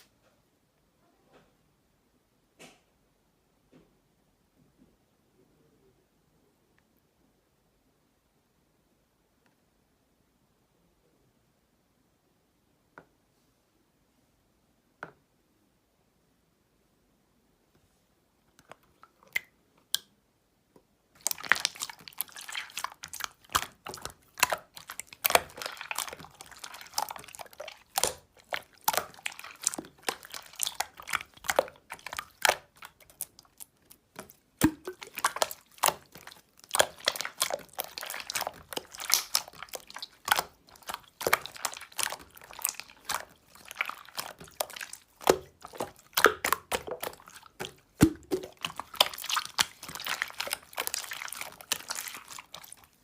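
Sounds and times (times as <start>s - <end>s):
slime squished by hand: 21.2s - 53.0s.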